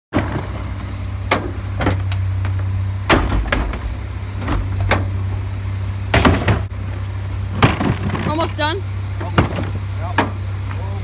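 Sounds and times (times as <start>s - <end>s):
garbage truck engine idling: 0.2s - 11.0s
sharp knocks and bangs: 3.0s - 5.2s, 6.1s - 6.7s.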